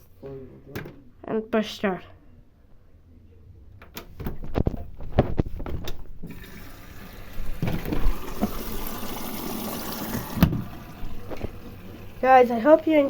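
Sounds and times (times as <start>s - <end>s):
water rushing into washing machine: 6.3s - 13.0s.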